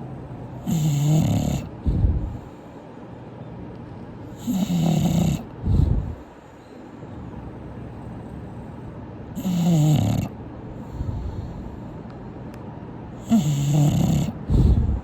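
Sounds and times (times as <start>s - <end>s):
dog low snort: 0.6s - 2.6s, 4.3s - 6.3s, 9.4s - 11.7s, 13.2s - 15.0s
dog snoring: 0.6s - 2.6s, 4.3s - 6.3s, 9.4s - 11.7s, 13.2s - 15.0s.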